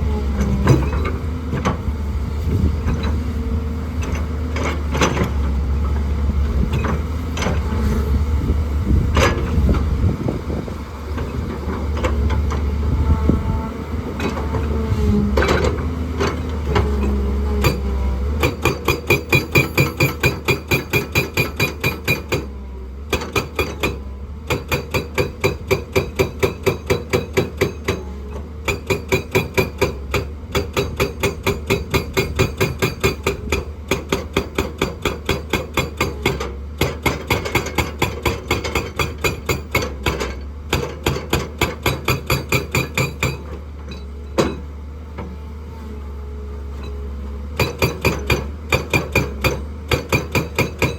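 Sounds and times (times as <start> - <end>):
excavator engine droning: 0.0 - 50.9
rock breaker hammering rock: 16.7 - 22.5, 23.1 - 44.6, 47.6 - 50.9.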